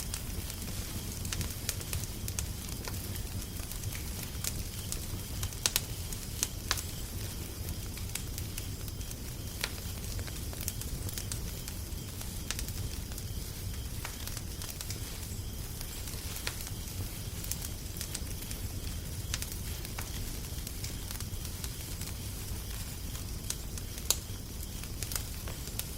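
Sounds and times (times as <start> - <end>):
fire hiss and rumble: 0.0 - 25.9
wood fire crackling and popping: 0.0 - 25.9.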